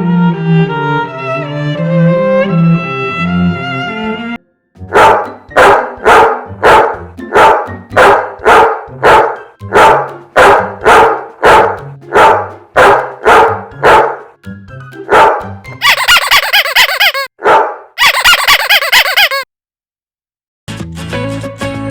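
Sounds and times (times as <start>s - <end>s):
music: 0.0s - 16.4s, 20.7s - 21.9s
small dog barking: 4.9s - 14.2s, 15.1s - 19.4s.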